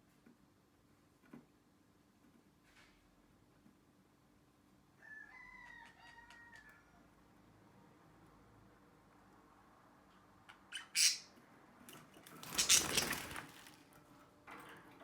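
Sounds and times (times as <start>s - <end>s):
lovebird squawking: 10.7s - 11.3s, 12.5s - 13.3s.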